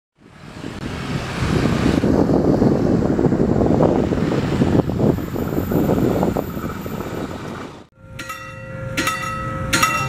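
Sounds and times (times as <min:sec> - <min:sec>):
train rumbling on rails: 0:00.2 - 0:10.0
steady tones: 0:07.9 - 0:10.0.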